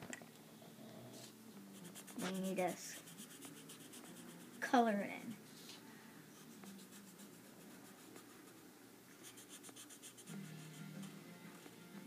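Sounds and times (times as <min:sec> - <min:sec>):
marker scratching on paper: 0:01.8 - 0:04.7, 0:06.4 - 0:10.8.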